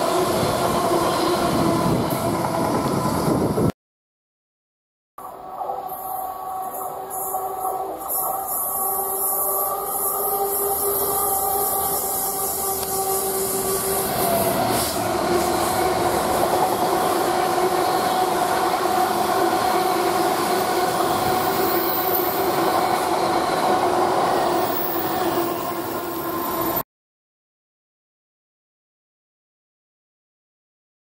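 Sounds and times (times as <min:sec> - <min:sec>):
train wheels rumbling on rail: 0:00.0 - 0:03.7, 0:05.8 - 0:26.8.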